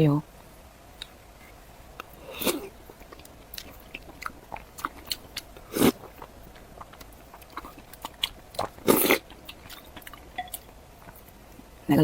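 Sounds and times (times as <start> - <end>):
wet chewing clicks and smacks: 2.9 - 11.3.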